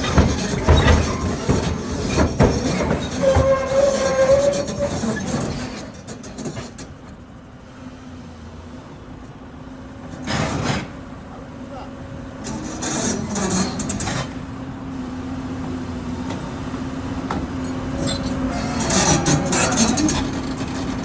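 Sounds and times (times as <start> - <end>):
heavy machinery clanking: 0.0 - 7.3, 16.2 - 21.0
high metallic squeal: 0.1 - 6.0, 17.6 - 21.0
machinery hum: 16.6 - 21.0.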